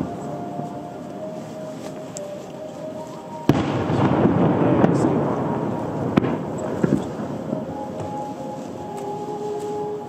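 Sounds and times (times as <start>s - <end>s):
firework boom: 3.5s - 7.2s.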